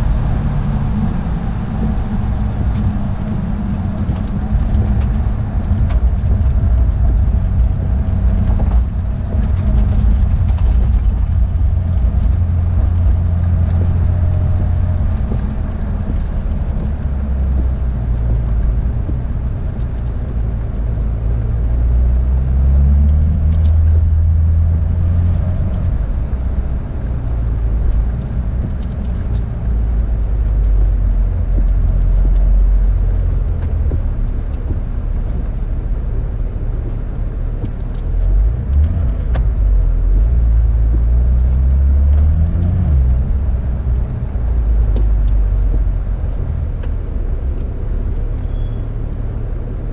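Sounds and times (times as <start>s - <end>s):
car engine running: 0.0s - 49.9s
road noise: 0.0s - 49.9s.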